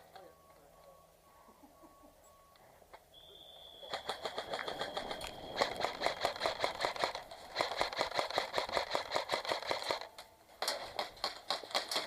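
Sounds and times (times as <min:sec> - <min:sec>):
airsoft gun firing full auto: 0:03.8 - 0:12.0.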